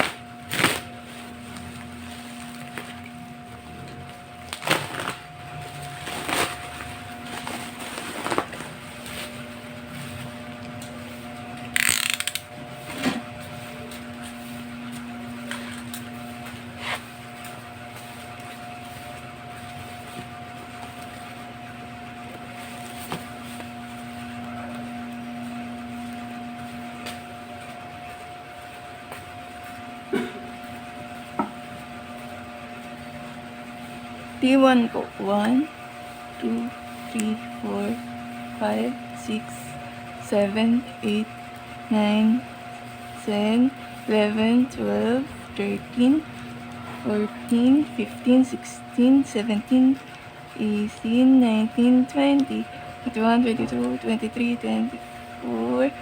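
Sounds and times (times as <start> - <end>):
electrical hum: 0.0 - 56.0
packaging rustle: 4.0 - 9.5.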